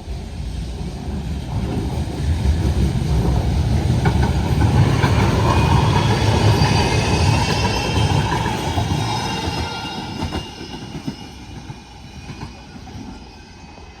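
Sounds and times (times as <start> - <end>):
tram wheels rumbling on rail: 0.0 - 14.0
high metallic wheel squeal: 5.2 - 14.0.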